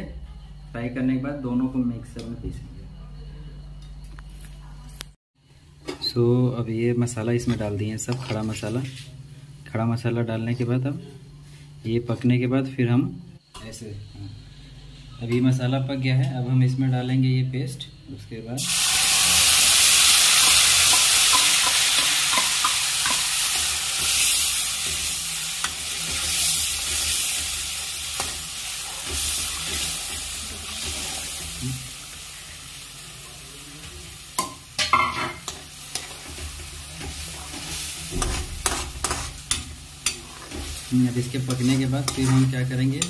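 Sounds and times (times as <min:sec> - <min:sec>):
paste sizzling in hot oil: 0:18.6 - 0:43.0
metal spoon scraping and knocking pan: 0:34.4 - 0:40.8.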